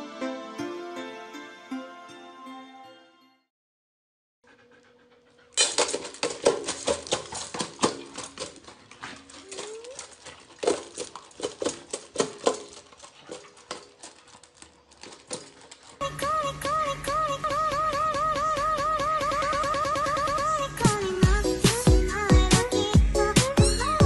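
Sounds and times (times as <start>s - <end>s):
dog crunching kibble: 5.6s - 16.0s
kibble clattering on metal bowl: 5.6s - 16.0s.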